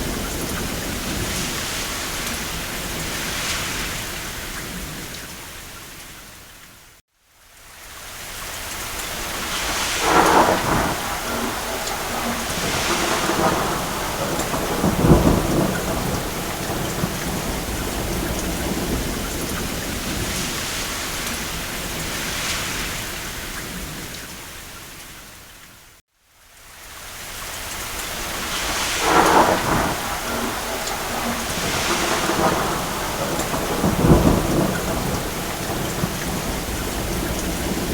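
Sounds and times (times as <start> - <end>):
distant thunder rumbling: 0.0 - 5.2, 9.2 - 24.2, 28.1 - 37.9
rain on a roof: 0.0 - 37.9.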